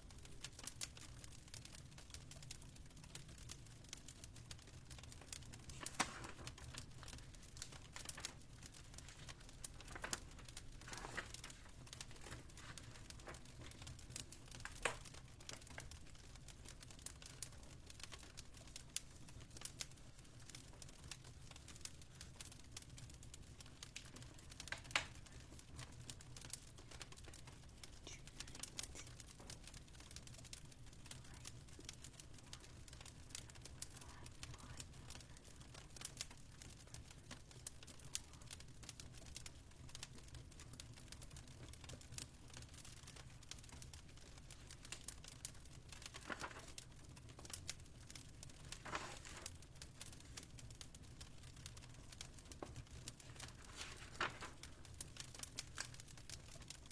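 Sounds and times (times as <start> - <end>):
fireplace crackling: 0.0 - 56.9.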